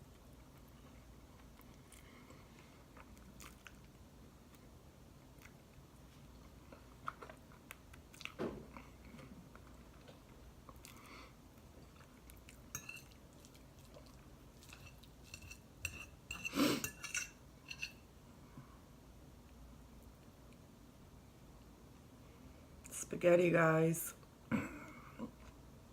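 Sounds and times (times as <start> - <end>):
quiet chewing: 0.0 - 15.7
cutlery clinking on a plate: 12.7 - 13.2, 14.7 - 18.0.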